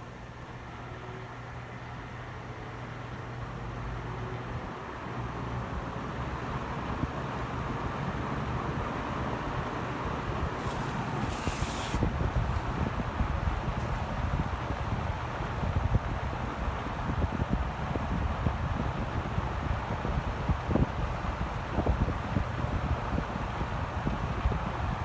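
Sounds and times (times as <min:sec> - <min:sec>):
box fan running: 0:00.0 - 0:25.0
brief high hiss: 0:10.6 - 0:12.8.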